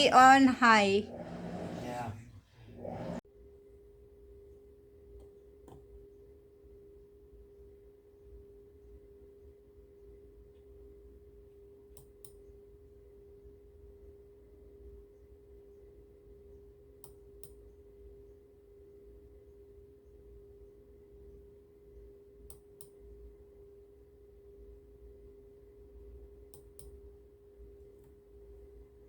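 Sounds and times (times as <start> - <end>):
washing machine humming: 0.0 - 3.2.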